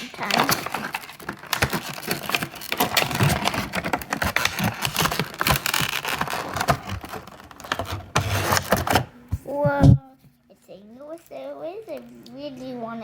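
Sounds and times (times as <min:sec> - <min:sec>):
clicks taps and scrapes of handling: 0:00.0 - 0:10.0.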